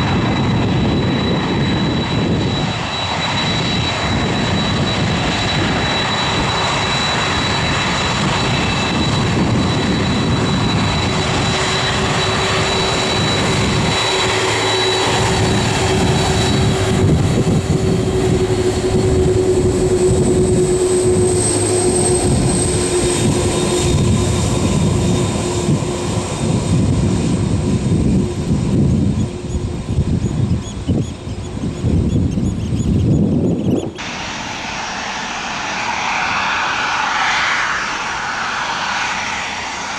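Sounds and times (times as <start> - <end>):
high engine whine: 0.0 - 31.8, 33.7 - 39.9
jet engines rushing: 0.0 - 39.9.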